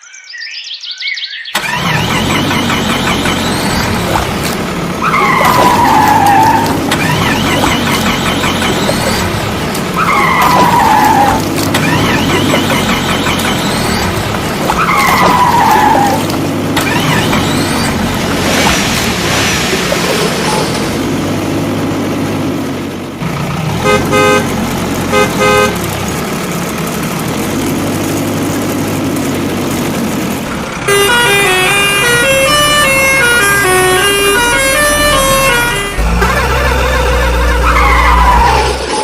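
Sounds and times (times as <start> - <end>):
cartoon engine running: 1.6 - 21.1, 30.9 - 39.0
horn honks: 23.7 - 26.0, 30.8 - 38.7.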